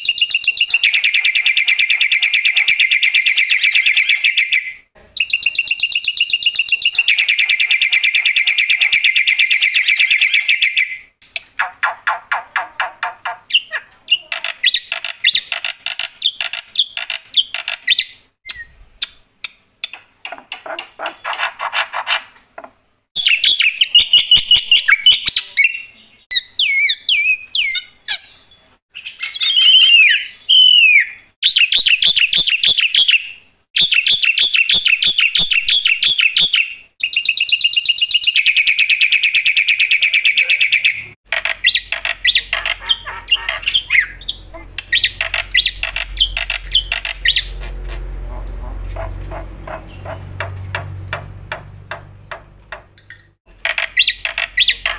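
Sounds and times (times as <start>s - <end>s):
bird singing with clicking chatter: 11.3s - 22.2s, 41.3s - 48.0s, 48.9s - 54.9s
low hum: 44.1s - 52.2s.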